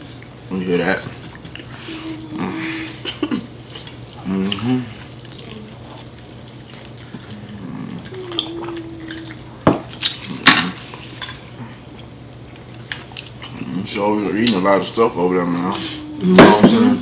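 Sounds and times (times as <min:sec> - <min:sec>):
short pitched vocal sounds: 0:01.8 - 0:03.0, 0:07.3 - 0:09.5.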